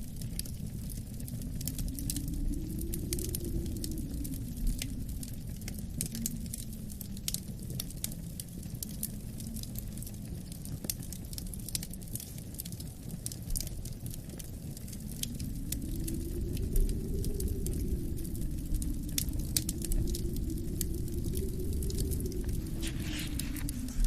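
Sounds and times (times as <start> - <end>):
low rushing wind: 0.0 - 7.1, 15.0 - 24.0
wood fire crackling and popping: 0.0 - 24.0.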